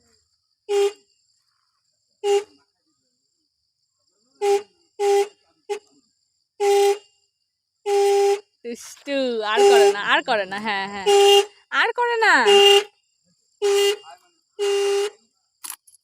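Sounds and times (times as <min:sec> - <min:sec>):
motorcycle horn beeps: 0:09.5 - 0:10.2, 0:11.0 - 0:11.5, 0:13.6 - 0:15.2.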